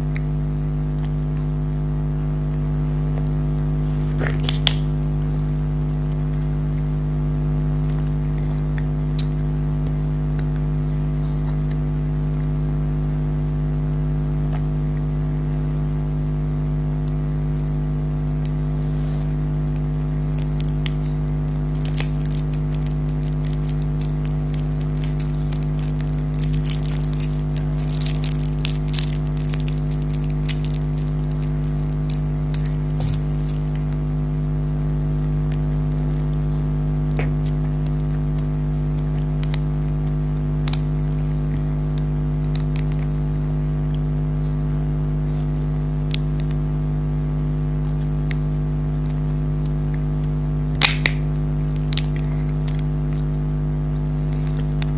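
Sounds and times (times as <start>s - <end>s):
low electrical hum: 0.0s - 54.9s
candy wrapper crackling and clicking: 19.8s - 34.0s, 39.4s - 41.2s, 42.4s - 43.1s, 50.8s - 52.9s.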